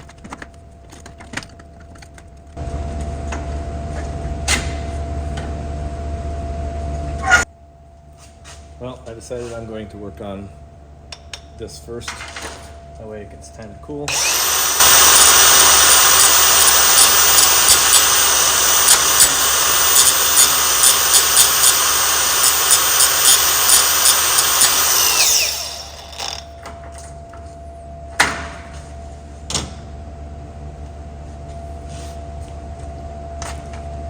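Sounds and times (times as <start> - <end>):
power tool running: 14.1 - 26.6.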